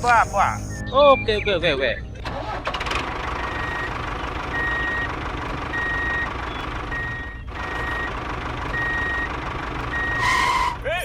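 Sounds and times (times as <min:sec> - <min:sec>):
engine rumble: 0:00.0 - 0:11.0
reversing alarm beeping: 0:03.4 - 0:09.3, 0:09.9 - 0:10.8.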